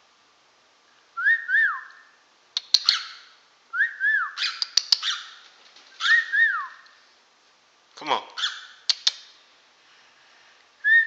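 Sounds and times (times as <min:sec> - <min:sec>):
cockatiel whistling: 0:01.2 - 0:05.4, 0:06.0 - 0:06.8
scratchy chirps and clicks: 0:02.6 - 0:03.2, 0:04.4 - 0:07.0.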